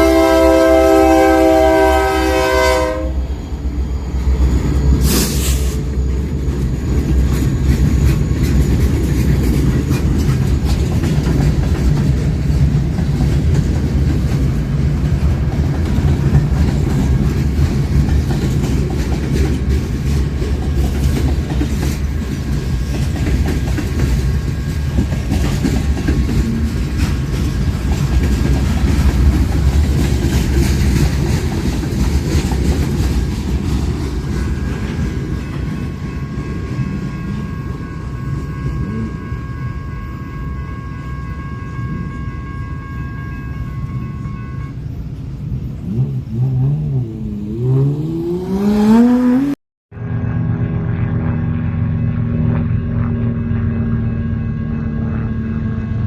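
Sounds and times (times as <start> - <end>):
locomotive horn: 0.0 - 3.4, 34.4 - 45.2, 45.8 - 56.0
train rumbling past: 0.0 - 56.0
short hiss: 5.0 - 5.8
wheels clattering over rail joints: 6.2 - 35.8.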